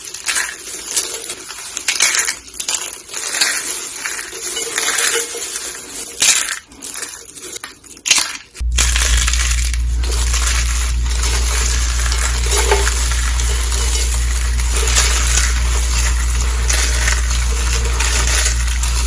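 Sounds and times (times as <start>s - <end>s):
dry soap crunching and crackling: 0.0s - 19.0s
low hum: 8.6s - 19.0s.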